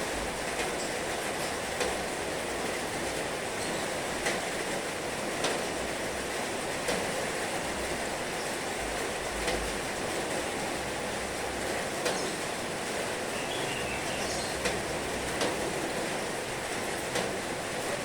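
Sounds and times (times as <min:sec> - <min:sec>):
heavy rain falling: 0:00.0 - 0:18.0
sharp raindrop ticks: 0:14.6 - 0:15.8.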